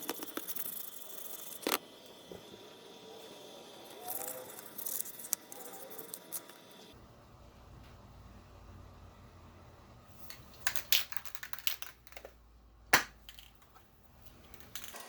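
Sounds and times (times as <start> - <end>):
small hard objects clicking: 10.3 - 15.0.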